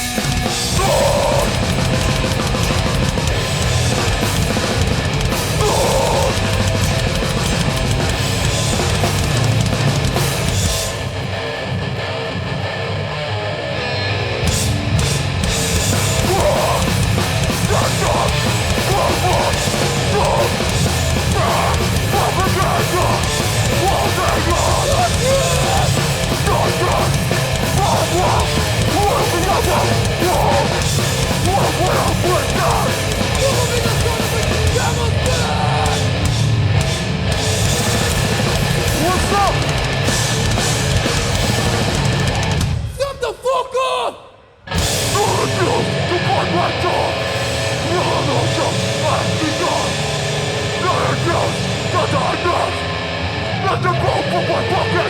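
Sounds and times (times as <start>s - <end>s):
pounding drums: 0.0s - 11.2s, 14.6s - 43.0s
distorted guitars and bass: 0.0s - 43.0s, 44.6s - 55.0s
shouted vocals: 0.6s - 1.8s, 5.4s - 7.0s, 16.1s - 36.3s, 38.8s - 39.8s, 42.9s - 44.4s, 45.0s - 55.0s.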